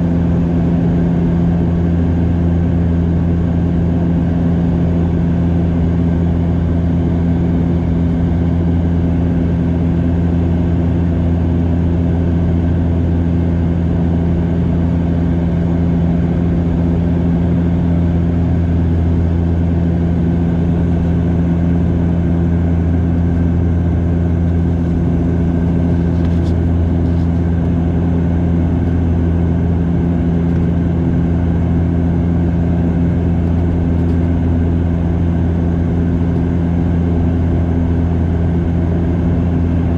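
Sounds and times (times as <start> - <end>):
turboprop engines droning in cabin: 0.0 - 39.9.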